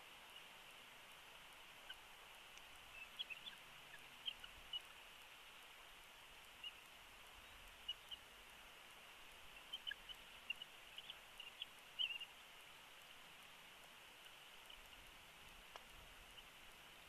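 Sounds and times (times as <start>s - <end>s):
faint hiss: 0.0s - 17.0s.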